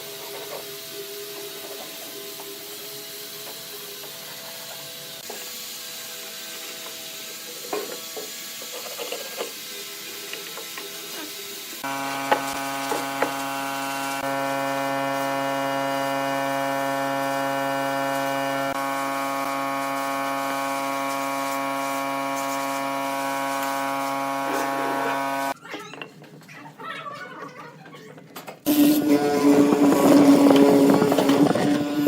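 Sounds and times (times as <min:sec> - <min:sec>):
electric power tool humming: 0:00.0 - 0:25.6, 0:28.6 - 0:32.0
wood scraping and knocking: 0:29.4 - 0:31.8.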